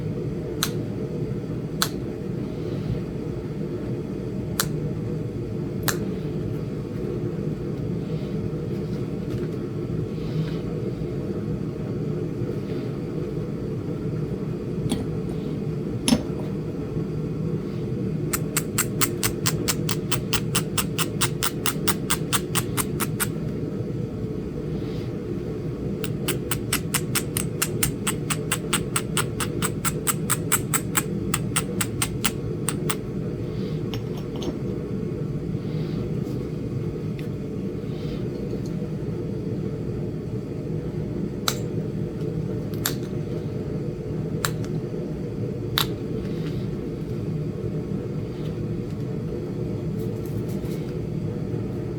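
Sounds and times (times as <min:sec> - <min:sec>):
steady low hum: 0:00.0 - 0:51.9
stone knapping clicks: 0:00.6 - 0:00.8, 0:18.3 - 0:23.4, 0:26.0 - 0:33.0, 0:45.8 - 0:46.0
rapid ticking: 0:18.4 - 0:23.3, 0:26.0 - 0:33.0.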